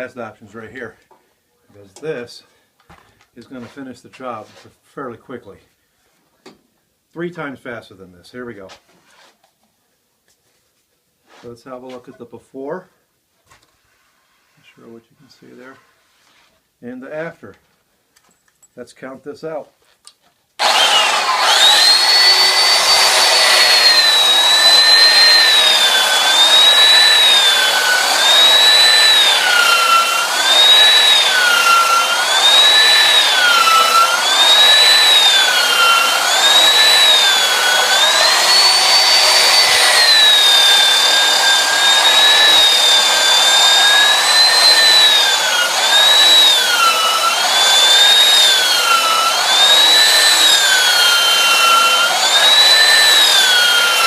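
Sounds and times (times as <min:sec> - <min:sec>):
belt sander sanding wood: 0:20.6 - 0:54.0.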